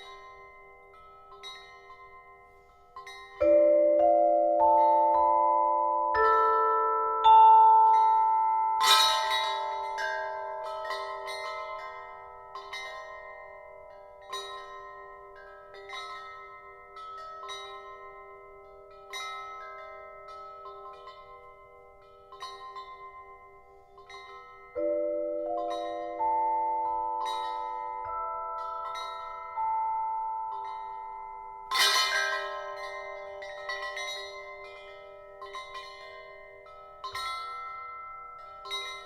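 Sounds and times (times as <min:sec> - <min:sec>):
metal chimes clashing: 0:00.0 - 0:39.0.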